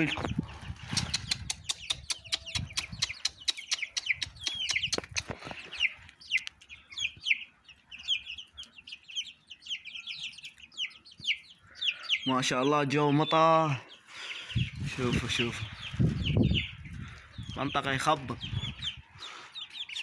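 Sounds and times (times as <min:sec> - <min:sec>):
chicks peeping: 0:00.0 - 0:20.0
sharp taps and clicks: 0:00.9 - 0:05.4.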